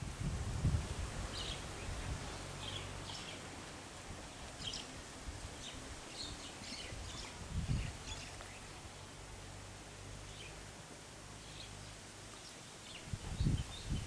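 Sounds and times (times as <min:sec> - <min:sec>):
wind rumble on microphone: 0:00.0 - 0:09.3, 0:12.9 - 0:14.0
birds chirping: 0:01.3 - 0:03.6, 0:04.2 - 0:09.2, 0:10.2 - 0:10.6.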